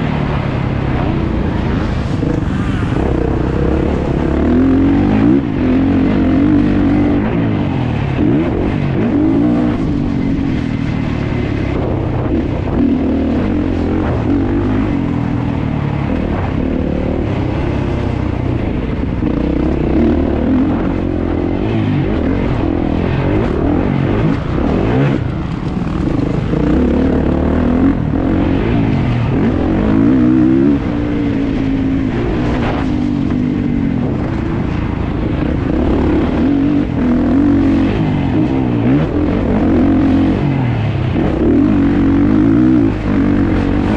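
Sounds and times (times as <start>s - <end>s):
motocross engine revving: 1.7s - 15.2s, 35.3s - 43.9s.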